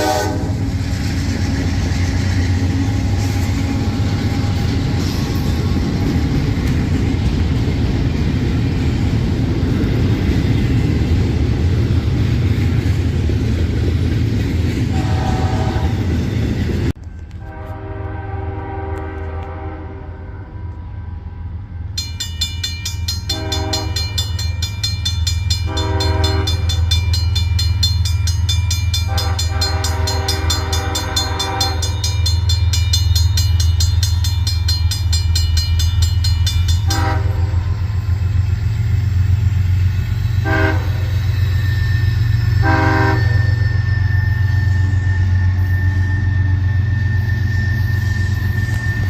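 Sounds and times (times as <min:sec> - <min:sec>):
locomotive horn blasts: 0:00.0 - 0:00.6, 0:14.9 - 0:16.1, 0:17.3 - 0:20.9, 0:23.2 - 0:24.3, 0:25.6 - 0:27.0, 0:28.9 - 0:32.3, 0:36.8 - 0:38.0, 0:40.4 - 0:41.2, 0:42.6 - 0:43.7
locomotive rumble: 0:00.0 - 0:49.0
rapid high ringing: 0:21.9 - 0:40.4, 0:41.0 - 0:49.0.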